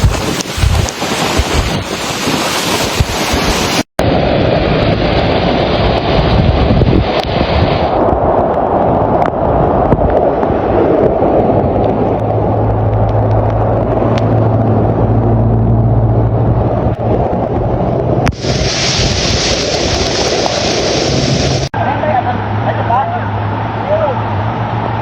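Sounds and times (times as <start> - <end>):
rushing water: 0.0 - 15.2, 16.1 - 25.0
wind on microphone: 0.0 - 21.8, 23.3 - 25.0
low motor hum: 10.0 - 18.7
bright even hiss: 18.4 - 21.7.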